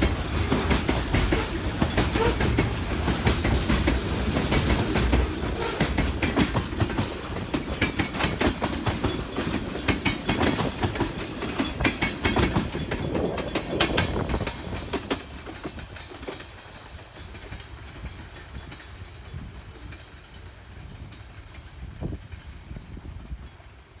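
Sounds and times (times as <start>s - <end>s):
train wheels clacking over rail joints: 0.0s - 22.5s
faint train rumble: 0.0s - 24.0s.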